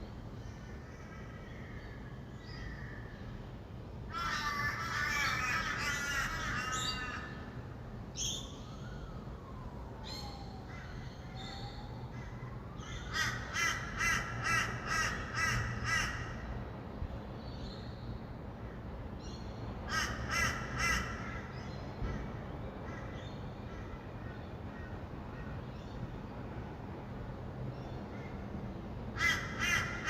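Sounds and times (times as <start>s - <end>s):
distant traffic hum: 0.0s - 30.0s
bird harsh calls: 4.1s - 7.4s
lorikeets screeching chatter: 4.1s - 7.5s.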